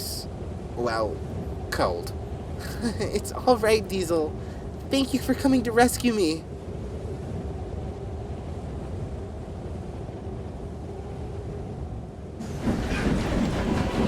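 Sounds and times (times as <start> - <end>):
steady low rumble: 0.0 - 14.0
train wheels clattering and squealing: 12.4 - 14.0.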